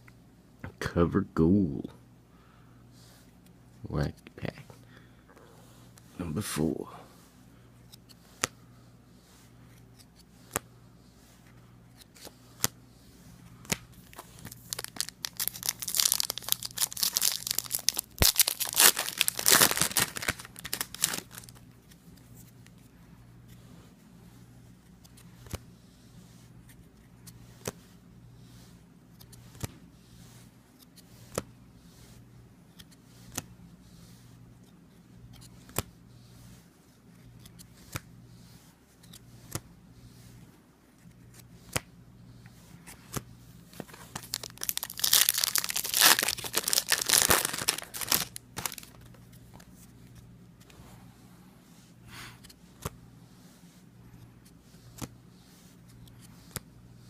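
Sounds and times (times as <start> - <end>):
wrapper tearing and crinkling: 14.0 - 21.6, 43.9 - 49.0.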